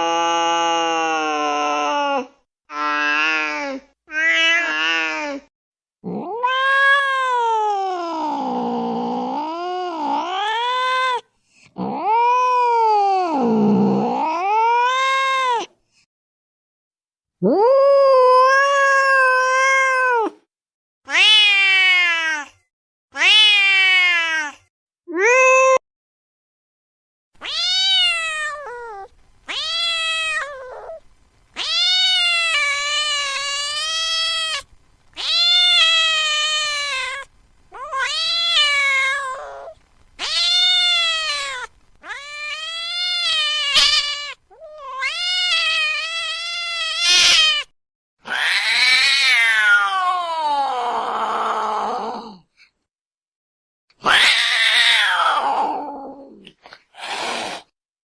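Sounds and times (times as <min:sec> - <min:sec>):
cat meowing in long cries: 0:00.0 - 0:11.2, 0:11.8 - 0:15.7, 0:17.4 - 0:20.4, 0:21.1 - 0:22.6, 0:23.2 - 0:25.8, 0:27.4 - 0:52.4, 0:54.0 - 0:56.5.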